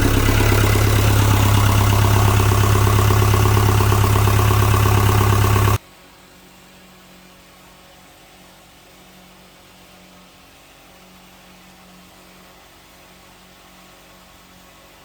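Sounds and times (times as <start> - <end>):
diesel engine idling: 0.0 - 5.8.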